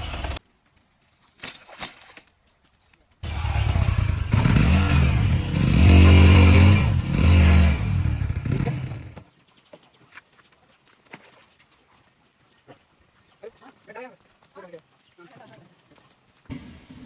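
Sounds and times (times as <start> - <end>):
vehicle engine running: 3.2 - 9.2.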